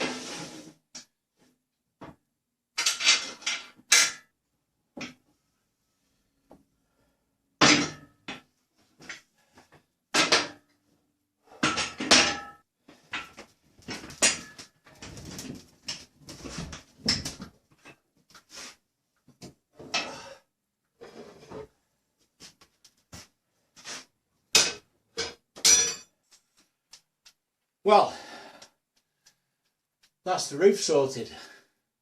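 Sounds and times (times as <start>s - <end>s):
objects knocking and clattering: 10.1s - 10.7s, 11.6s - 18.0s.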